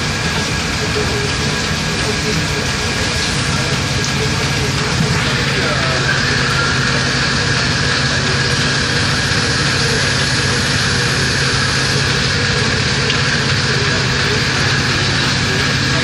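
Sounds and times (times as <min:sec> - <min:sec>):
gear shaping machine hum: 0:00.0 - 0:16.0
high machine whine: 0:00.0 - 0:16.0.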